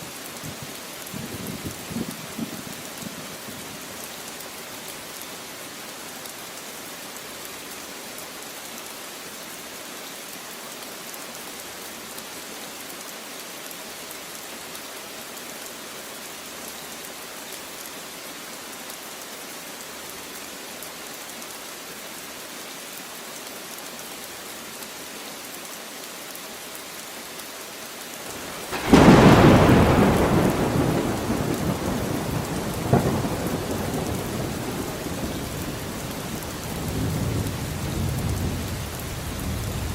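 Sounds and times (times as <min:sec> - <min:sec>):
steady rain: 0:00.0 - 0:39.9
thunderclap rumbling: 0:28.6 - 0:39.9.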